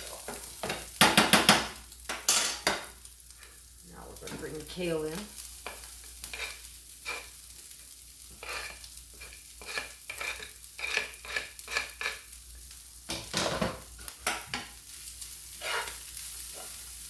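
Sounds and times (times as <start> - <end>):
food sizzling in a frying pan: 0.0 - 17.0
utensil knocking against pan: 0.6 - 2.8.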